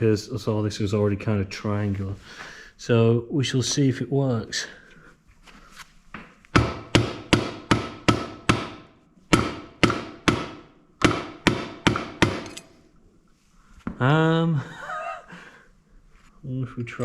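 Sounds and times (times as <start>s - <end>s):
hammer striking metal tool: 6.6s - 12.8s.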